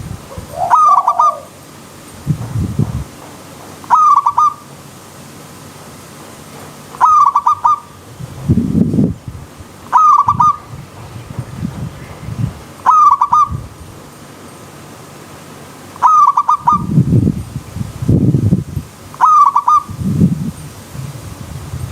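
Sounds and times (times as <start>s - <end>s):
dove cooing: 0.2s - 1.6s, 3.9s - 4.6s, 7.0s - 7.9s, 9.9s - 10.7s, 12.8s - 13.6s, 16.0s - 17.0s, 19.2s - 19.9s.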